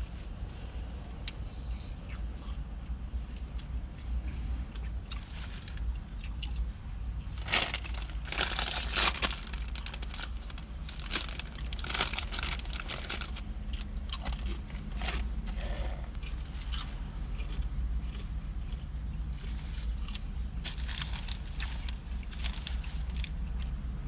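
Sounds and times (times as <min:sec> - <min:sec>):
steady low hum: 0:00.0 - 0:24.0
paper wrapper crinkling: 0:07.4 - 0:17.0, 0:20.6 - 0:23.4.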